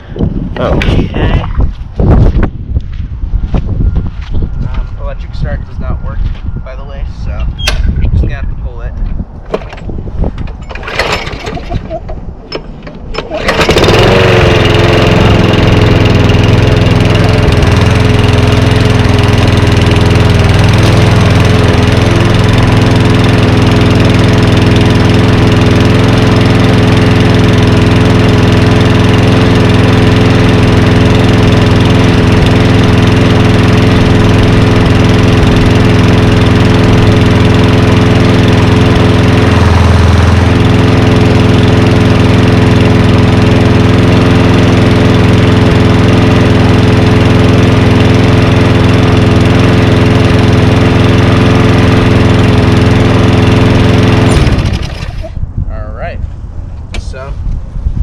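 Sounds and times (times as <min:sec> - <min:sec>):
lawn mower engine starting and running: 0:09.2 - 0:55.5.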